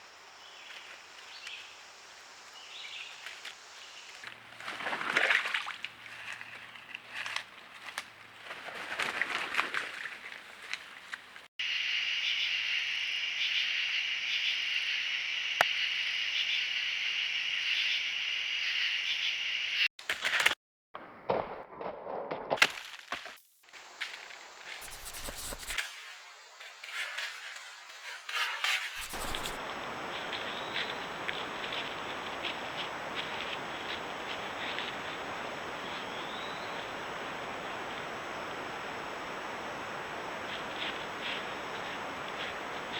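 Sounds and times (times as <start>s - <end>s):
high-pitched insect chorus: 11.6s - 19.9s, 23.7s - 26.7s, 28.9s - 42.9s
footsteps in leaf litter: 24.8s - 25.8s, 29.0s - 29.6s.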